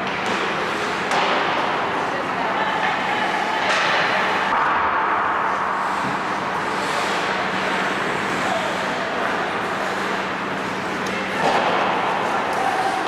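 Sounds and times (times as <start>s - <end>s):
skate scrape: 0.2s - 4.6s, 5.5s - 13.0s
ice rink hiss: 0.6s - 1.0s, 5.5s - 13.0s.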